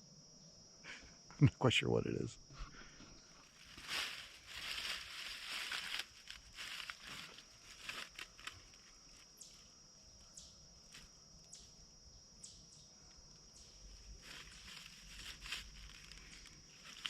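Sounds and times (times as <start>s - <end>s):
rustling in dry leaves: 3.4s - 9.6s, 13.8s - 17.0s.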